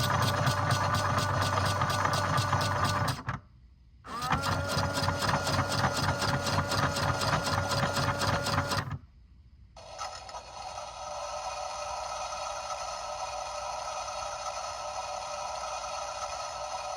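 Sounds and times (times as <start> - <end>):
washing machine motor rattling: 0.0 - 3.3
quiet steady hum: 3.3 - 4.1, 9.0 - 9.8.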